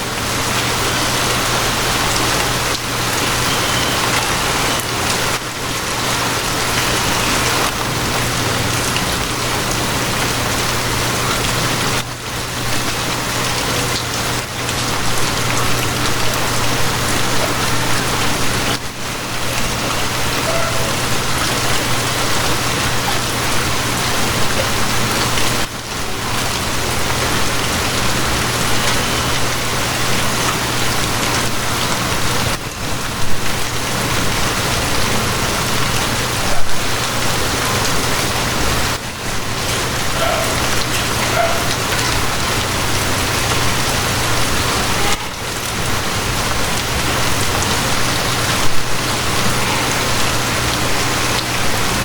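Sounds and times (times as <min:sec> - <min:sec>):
loud splashes: 0:00.0 - 0:12.0
steady rain falling: 0:00.0 - 0:52.0.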